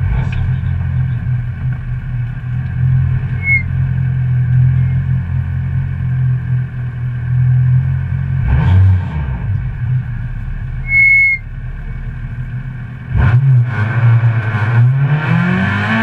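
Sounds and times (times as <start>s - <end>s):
car engine running at low revs: 0.0s - 16.0s
brief high squeak: 3.4s - 3.7s, 10.9s - 11.4s.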